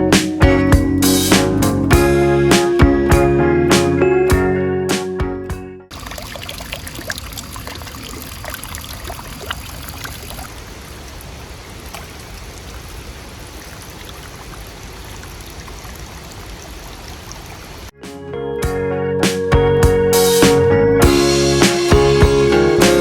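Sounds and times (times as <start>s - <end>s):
small splashes and drips: 5.9s - 17.9s
rush of running water: 5.9s - 18.0s.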